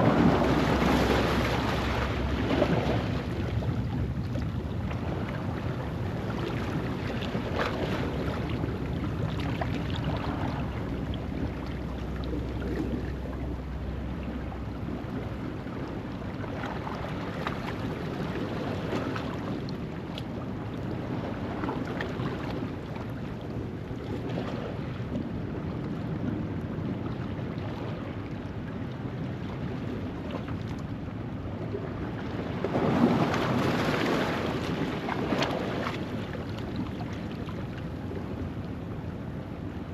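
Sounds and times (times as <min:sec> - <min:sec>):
waves washing over rocks: 0:00.0 - 0:04.3, 0:32.4 - 0:36.3.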